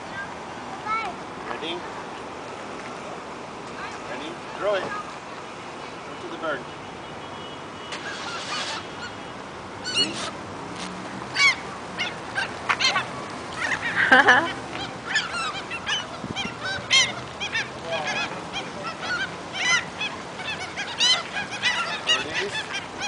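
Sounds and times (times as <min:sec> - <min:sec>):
flock of birds calling: 0:07.9 - 0:10.4, 0:11.3 - 0:23.0.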